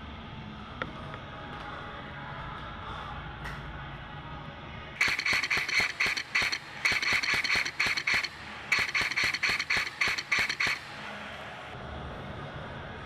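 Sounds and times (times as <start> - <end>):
airsoft gun firing rapid shots: 5.0 - 11.3.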